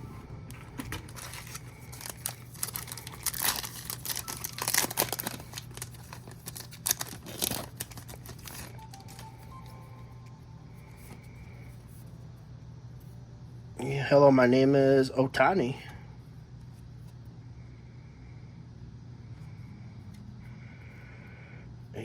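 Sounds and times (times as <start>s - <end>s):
wrapper crinkling and tearing: 0.5s - 9.7s.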